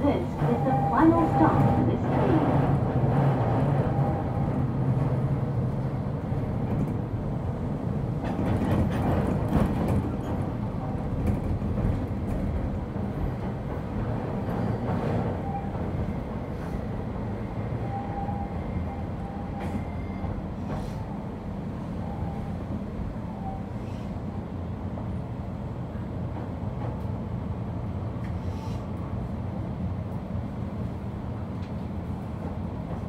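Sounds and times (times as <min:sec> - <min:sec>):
train wheels rumbling on rails: 0:00.0 - 0:33.0
clicks from rail joints: 0:08.2 - 0:10.6, 0:31.6 - 0:31.9.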